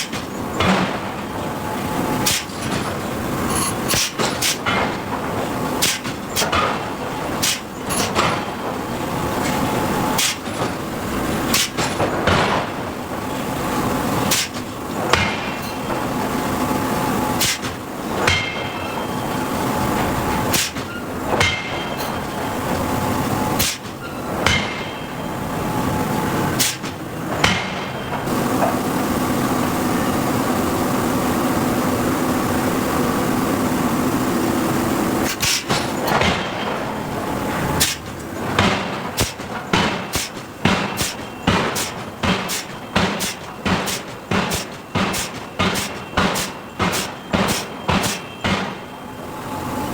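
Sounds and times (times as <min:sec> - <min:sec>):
steady machine noise: 0:00.0 - 0:49.9
forging hammer striking steel: 0:02.2 - 0:12.8, 0:14.2 - 0:16.1, 0:17.4 - 0:19.2, 0:20.4 - 0:22.6, 0:23.6 - 0:25.3, 0:26.6 - 0:28.3, 0:35.2 - 0:49.0.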